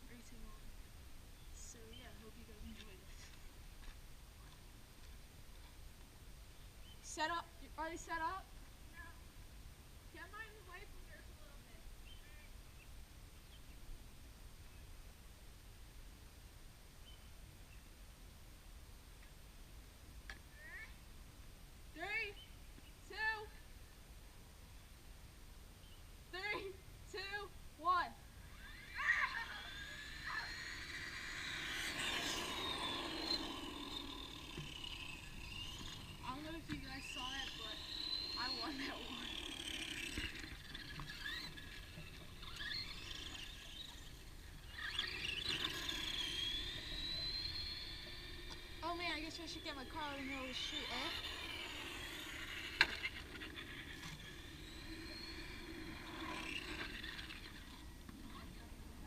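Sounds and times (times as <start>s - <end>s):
electric toy car motors whining: 26.4s - 59.0s.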